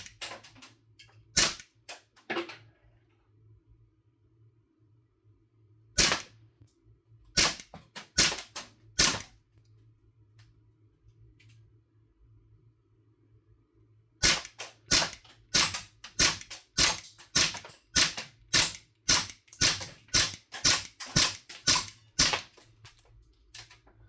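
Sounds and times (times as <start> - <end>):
airsoft pistol firing pops: 6.0 - 6.3.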